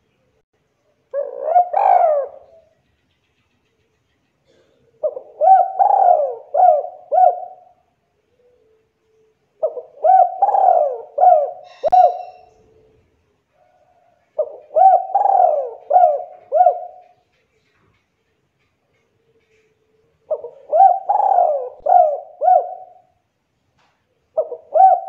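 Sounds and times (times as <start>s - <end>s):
dove cooing: 1.1s - 2.7s, 4.4s - 8.8s, 9.6s - 17.3s, 19.3s - 23.2s, 24.3s - 25.0s.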